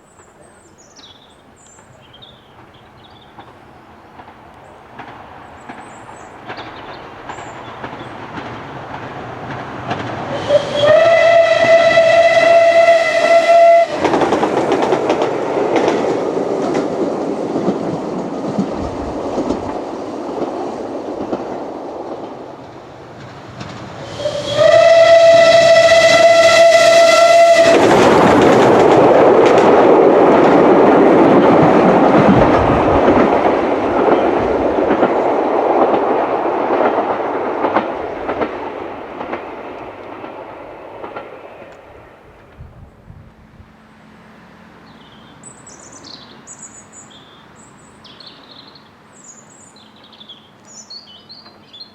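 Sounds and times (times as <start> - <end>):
locomotive clattering past: 1.7 - 42.6
steam locomotive whistle: 10.3 - 14.2, 24.0 - 28.2.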